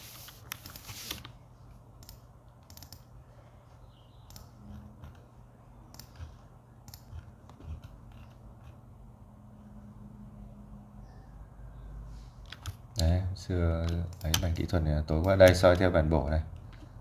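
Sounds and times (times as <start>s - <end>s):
faint low hum: 0.0s - 17.0s
computer mouse clicks: 2.0s - 3.1s, 4.2s - 5.3s, 5.9s - 8.8s, 12.4s - 13.1s.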